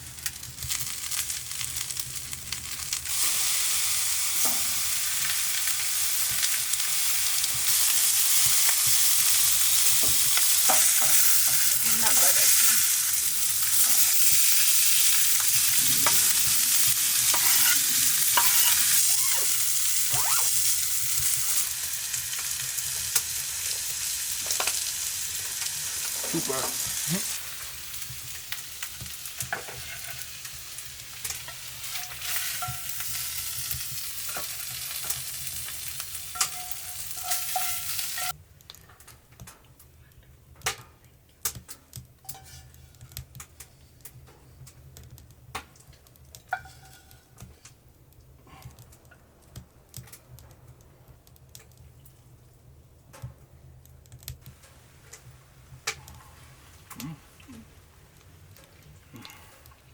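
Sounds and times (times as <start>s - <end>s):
food sizzling in hot pan: 0.0s - 38.4s, 46.5s - 47.3s.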